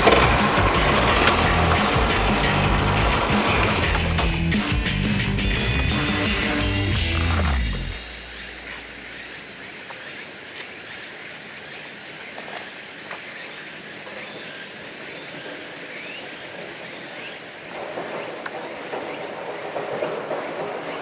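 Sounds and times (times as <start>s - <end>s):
steady rushing noise: 0.0s - 10.4s.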